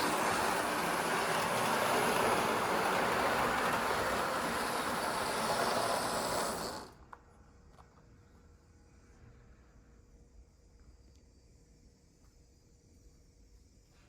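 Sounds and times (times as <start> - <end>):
model train whirring rattle: 0.0 - 7.2.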